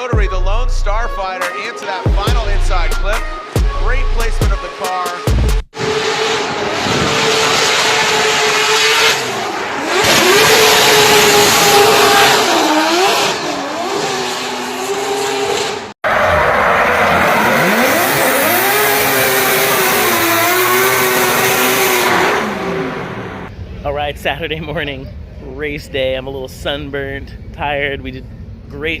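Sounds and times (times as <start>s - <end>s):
rotary engine revving: 5.7s - 23.5s.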